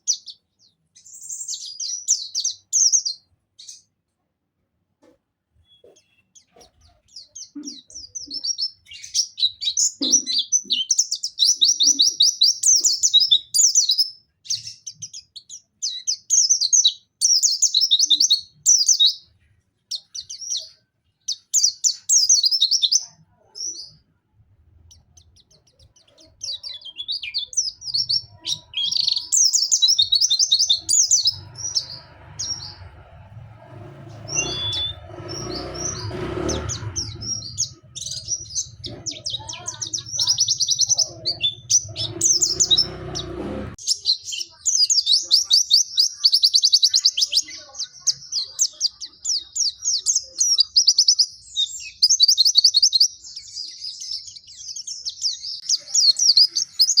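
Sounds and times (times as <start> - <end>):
songbird trilling: 5.7 - 19.3, 24.9 - 57.0.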